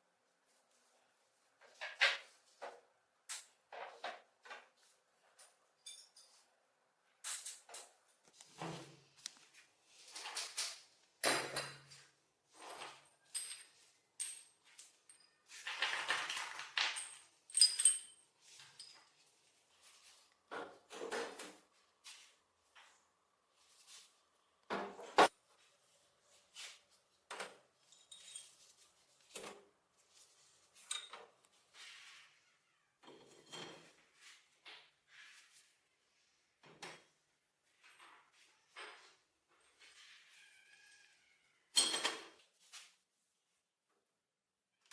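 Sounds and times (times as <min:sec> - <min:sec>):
metal parts clinking and scraping: 0:12.6 - 0:19.2, 0:27.8 - 0:28.8.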